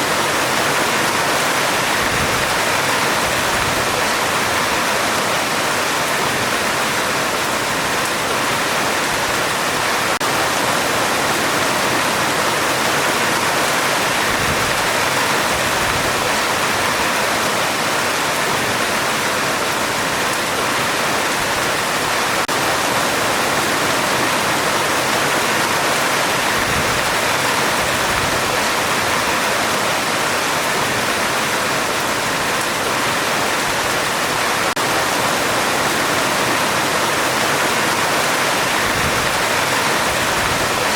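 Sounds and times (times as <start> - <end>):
heavy rain on a metal roof: 0.0 - 40.9.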